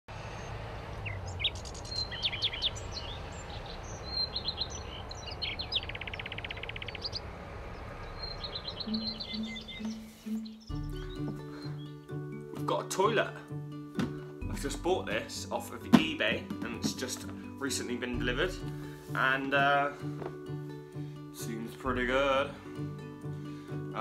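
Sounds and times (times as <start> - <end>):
songbirds chirping and singing: 0.3 - 24.0
bird trill: 0.4 - 12.4.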